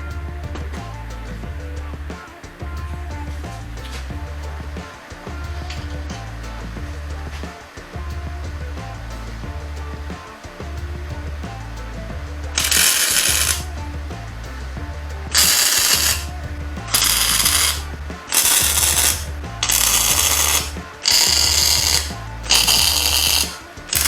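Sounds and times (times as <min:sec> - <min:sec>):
background music with bass: 0:00.0 - 0:24.0
welding crackling hiss: 0:08.8 - 0:24.0.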